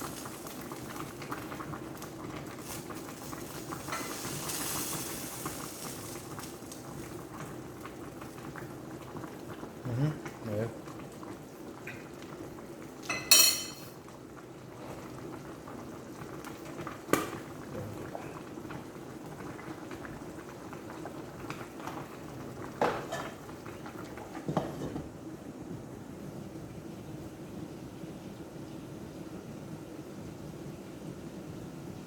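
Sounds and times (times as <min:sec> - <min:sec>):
pot bubbling and hissing: 0:00.0 - 0:32.0
metal utensil clanking on pot: 0:13.1 - 0:13.9.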